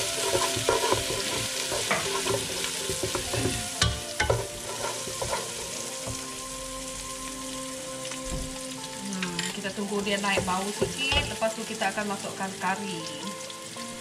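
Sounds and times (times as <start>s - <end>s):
wooden spatula scraping pot: 0.0s - 6.2s
food sizzling in hot oil: 0.0s - 14.0s.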